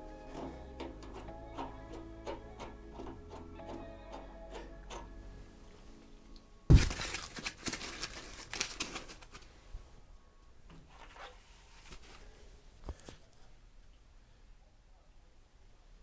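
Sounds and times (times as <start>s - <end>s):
sudden thump: 6.7s - 7.2s
rustling and crinkling handling: 6.7s - 10.0s, 10.7s - 13.6s.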